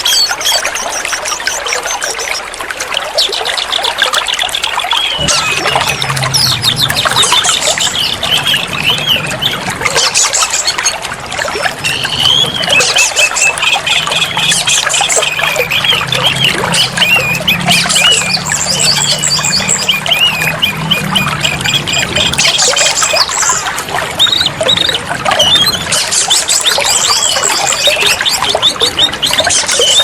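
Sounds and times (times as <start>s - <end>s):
running water trickling: 0.0s - 30.0s
songbird warbling and chattering: 3.2s - 11.0s, 11.8s - 30.0s
low steady hum: 5.1s - 9.9s.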